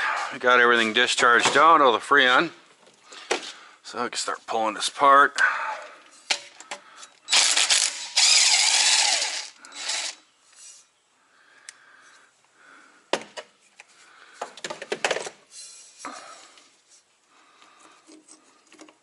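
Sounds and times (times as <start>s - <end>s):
ratchet wrench ratcheting: 7.3s - 10.2s.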